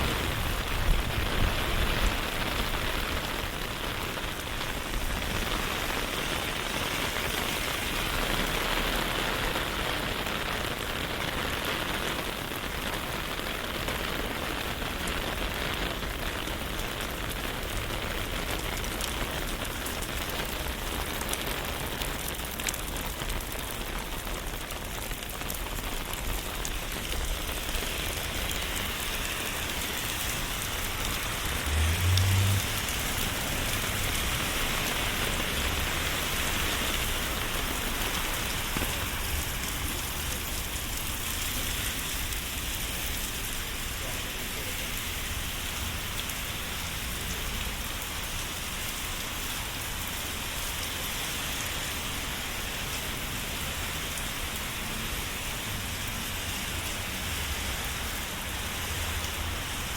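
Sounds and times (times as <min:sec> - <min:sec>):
rain drops pattering: 0:00.0 - 0:59.9.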